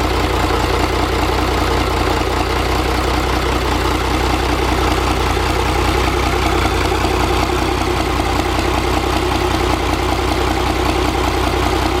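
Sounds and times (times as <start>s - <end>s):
diesel engine running steadily: 0.0s - 12.0s.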